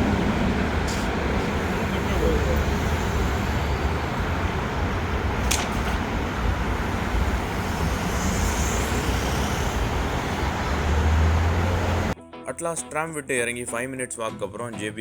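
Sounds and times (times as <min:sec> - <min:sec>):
vehicle rumble: 0:00.0 - 0:12.2
sharp click: 0:05.5 - 0:06.0.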